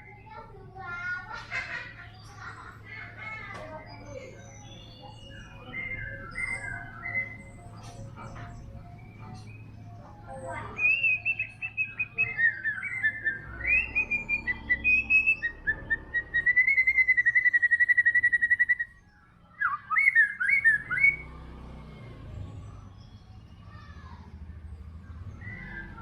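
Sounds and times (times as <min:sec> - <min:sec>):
bird singing whistled phrases: 0:04.1 - 0:07.9, 0:10.7 - 0:21.4, 0:25.4 - 0:26.0.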